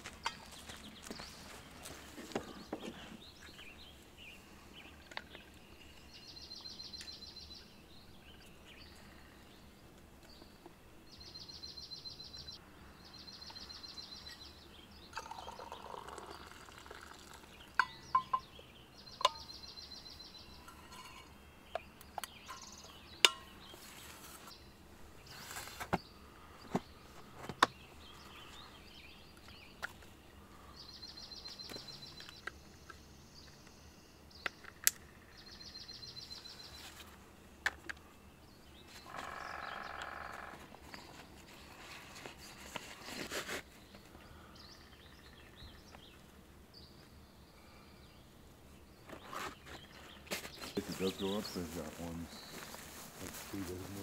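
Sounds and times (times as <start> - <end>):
bird singing high pulsed trill: 3.4 - 9.8, 11.0 - 25.5, 30.7 - 36.9, 38.4 - 41.2, 44.5 - 49.0.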